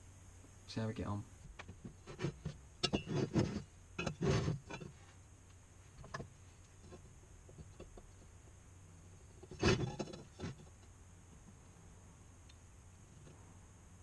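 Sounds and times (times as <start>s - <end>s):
metal pipes knocking and scraping: 1.8s - 5.0s, 9.4s - 10.7s.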